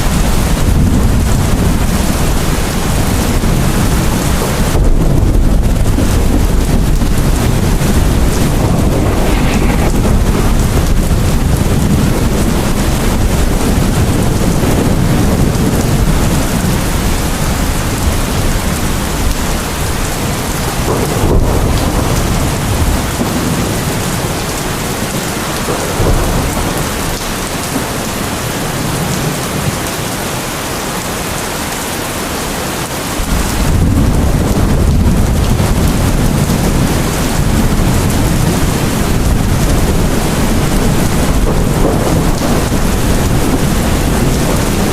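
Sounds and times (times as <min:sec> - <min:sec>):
rolling thunder rumble: 0:00.0 - 0:30.1, 0:33.2 - 0:44.9
heavy rain: 0:00.0 - 0:44.9.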